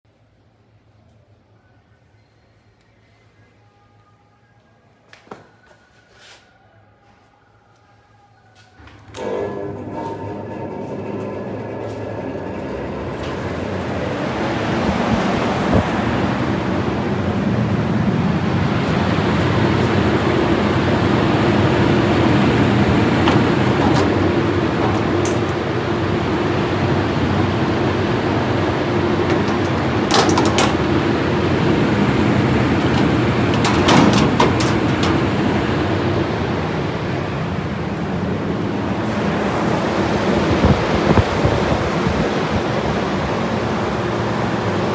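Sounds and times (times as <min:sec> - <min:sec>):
fan air rushing: 0:07.7 - 0:44.9
sharp clicks or rattles: 0:29.3 - 0:30.9.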